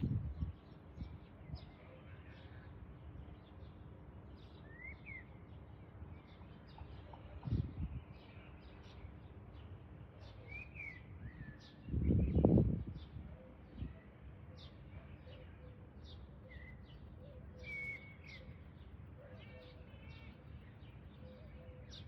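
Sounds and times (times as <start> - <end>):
small birds chirping: 13.8 - 22.0
slurred whistled bird notes: 17.6 - 18.6.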